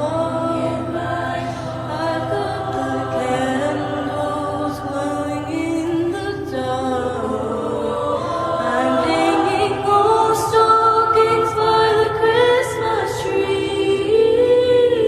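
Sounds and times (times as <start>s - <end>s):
choir singing in harmony: 0.0s - 15.0s.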